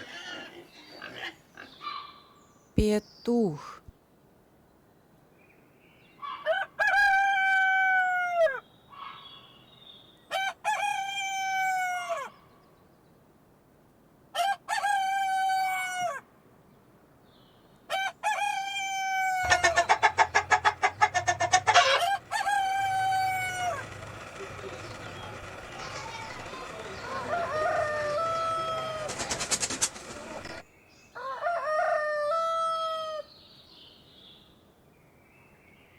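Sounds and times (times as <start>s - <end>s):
rooster crowing: 6.4s - 8.6s, 18.2s - 23.9s, 27.0s - 29.1s, 31.2s - 33.3s.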